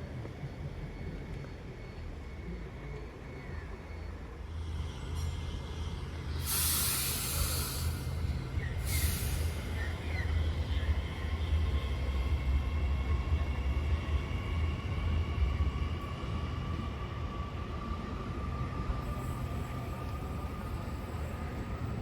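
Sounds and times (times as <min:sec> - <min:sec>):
electric train humming: 0:00.2 - 0:22.0
air brakes hissing: 0:06.3 - 0:10.1.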